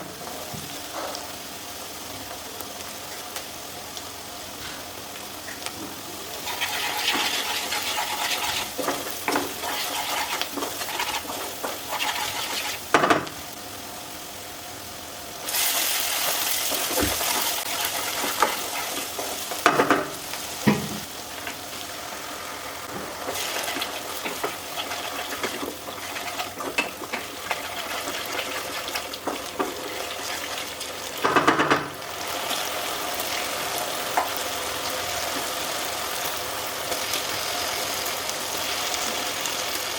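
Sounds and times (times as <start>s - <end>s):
chicken sizzling in oil: 0.0s - 39.9s
utensil knocking against pan: 12.9s - 13.3s, 31.2s - 31.9s.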